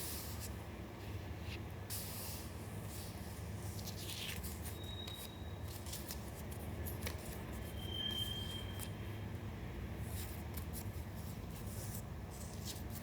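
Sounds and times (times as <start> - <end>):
low room hum: 0.0 - 13.0
paper crackling: 3.6 - 7.5
short high squeaks: 7.7 - 8.8.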